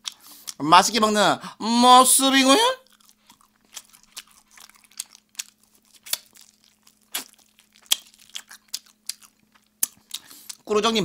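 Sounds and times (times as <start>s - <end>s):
chewing crispy chicken crunches: 2.8s - 10.7s.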